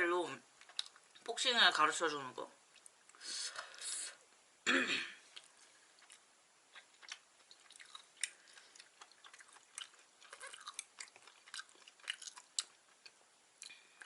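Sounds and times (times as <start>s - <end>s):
person chewing food: 0.5s - 1.3s, 2.7s - 3.8s, 5.2s - 14.0s.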